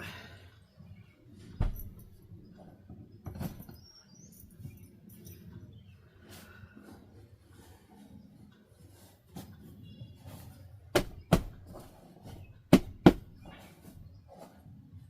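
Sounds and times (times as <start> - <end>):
sharp knocks in pairs: 10.9 - 11.7, 12.7 - 13.4.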